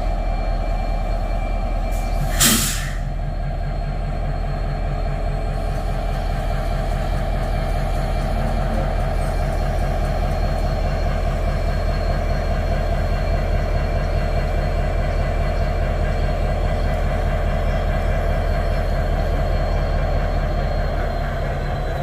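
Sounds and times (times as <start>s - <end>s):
freight train rumbling past: 0.0s - 22.0s
wheels squealing on rails: 0.0s - 22.0s.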